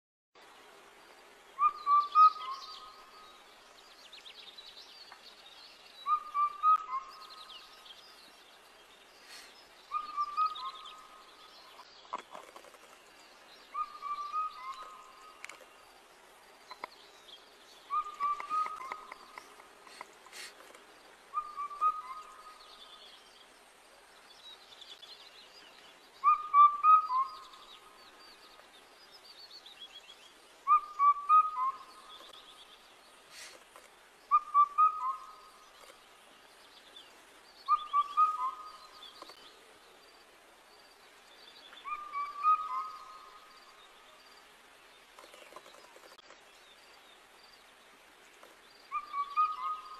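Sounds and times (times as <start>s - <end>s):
faint high bird chirps: 17.8s - 19.5s, 21.3s - 23.2s, 37.6s - 39.6s, 41.4s - 44.5s, 48.7s - 49.9s.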